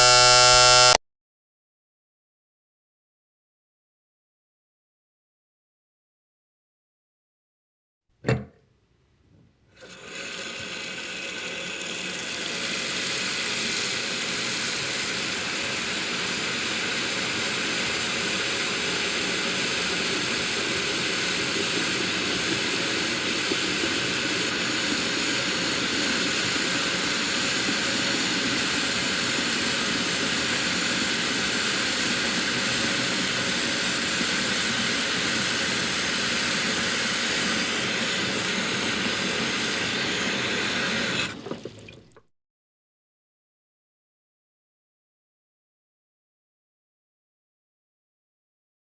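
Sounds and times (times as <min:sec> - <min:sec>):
engine drone: 0:00.0 - 0:01.0.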